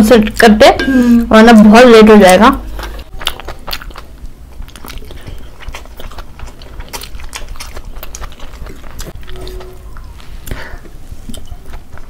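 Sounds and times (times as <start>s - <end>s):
mouth clicks and smacks while eating: 2.8s - 12.0s.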